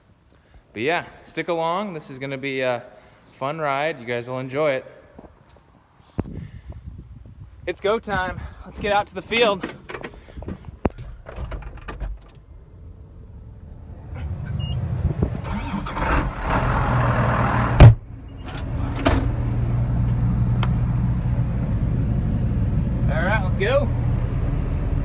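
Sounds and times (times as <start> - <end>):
vehicle engine idling: 8.4 - 25.0
door slam: 11.0 - 12.4, 17.7 - 19.4.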